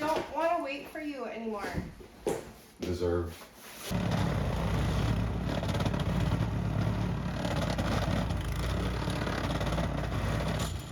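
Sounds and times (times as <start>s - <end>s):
engine running with rattling clatter: 3.9s - 10.9s.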